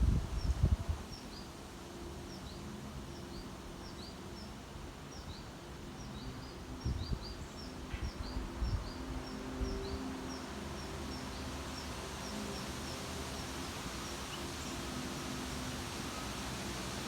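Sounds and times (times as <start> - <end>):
wind thumps on microphone: 0.0 - 1.0.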